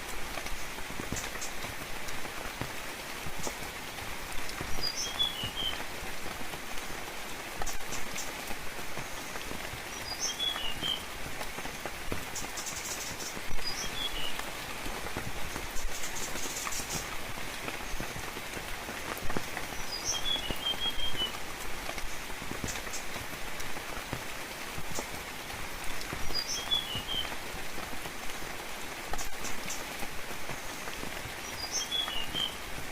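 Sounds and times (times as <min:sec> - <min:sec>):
steady rainfall: 0:00.0 - 0:32.9.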